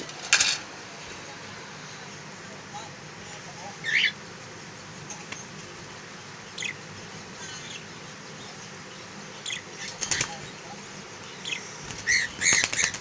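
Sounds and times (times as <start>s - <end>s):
birds chirping: 1.8s - 13.0s
wings flapping and scuffling: 9.8s - 10.6s, 11.8s - 13.0s.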